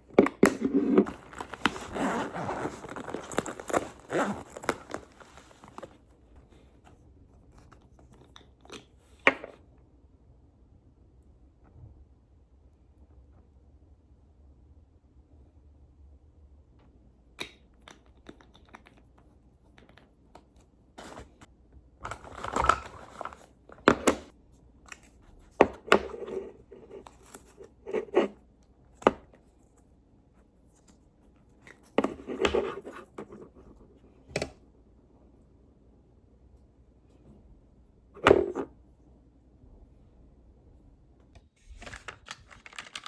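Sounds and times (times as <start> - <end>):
rustling and scraping: 0.0 - 8.2, 21.0 - 23.8.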